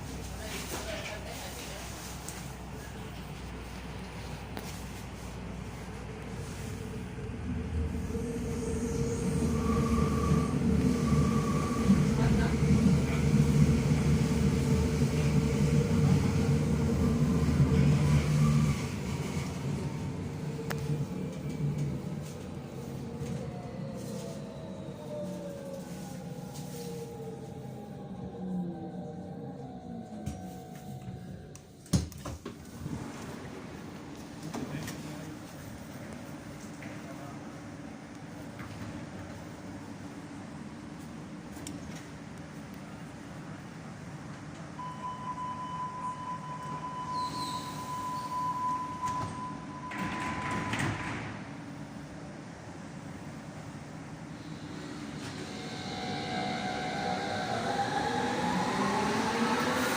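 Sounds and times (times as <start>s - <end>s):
rail rumble: 0.0s - 44.8s
high-pitched train drive whistle: 44.8s - 49.4s.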